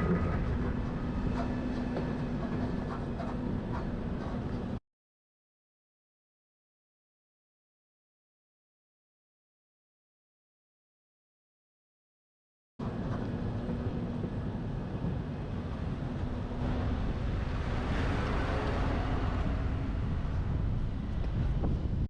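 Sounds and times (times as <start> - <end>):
truck road and engine noise: 0.0 - 4.8, 12.8 - 22.0
wind buffeting camera: 0.0 - 4.8, 12.8 - 22.0.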